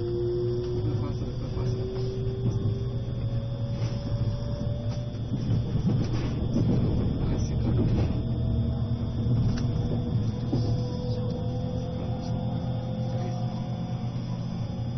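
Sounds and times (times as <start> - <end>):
faint whining tones: 0.0 - 14.9
train interior rumble and hum: 0.0 - 14.9.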